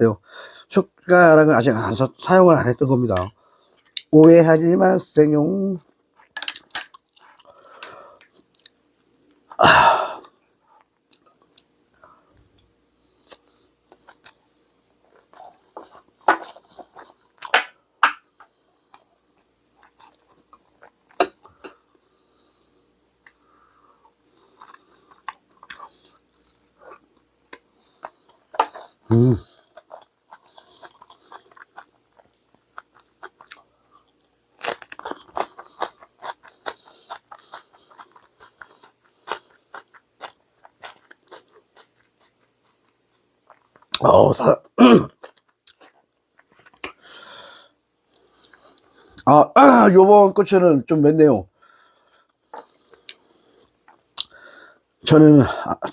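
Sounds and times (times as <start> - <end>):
person chewing food: 5.9 - 44.1, 45.1 - 49.3, 51.6 - 54.7
crisp crunching bites: 34.6 - 42.1.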